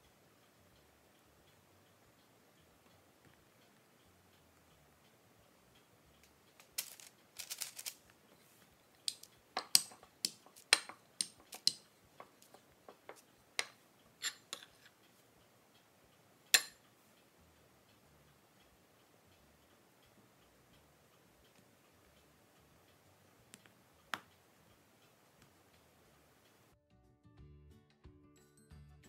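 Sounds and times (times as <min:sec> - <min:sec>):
rolling pin tapping on stone: 0:09.1 - 0:14.9.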